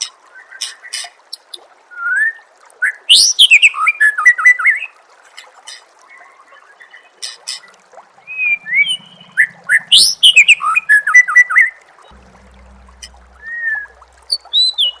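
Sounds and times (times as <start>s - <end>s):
bird singing whistled notes: 8.3s - 11.8s.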